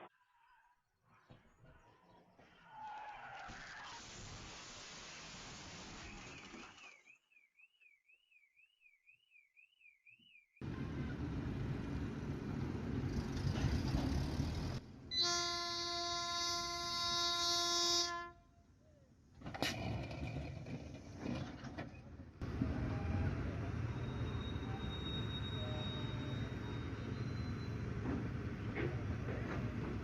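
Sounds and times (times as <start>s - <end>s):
vehicle road and engine noise: 10.6s - 15.1s, 19.4s - 30.0s.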